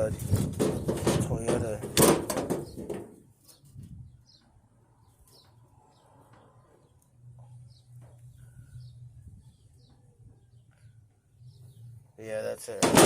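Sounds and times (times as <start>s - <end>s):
bird chirping: 3.4s - 12.6s.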